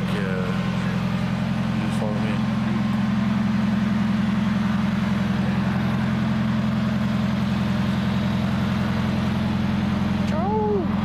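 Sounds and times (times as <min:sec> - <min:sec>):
car engine droning: 0:00.0 - 0:11.0.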